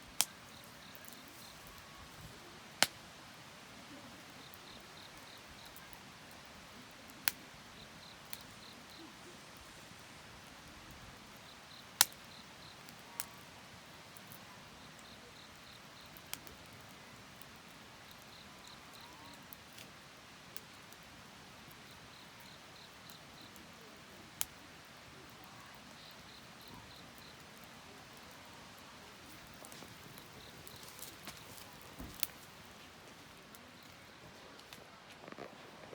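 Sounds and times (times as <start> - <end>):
wood fire crackling: 0.0 - 35.9.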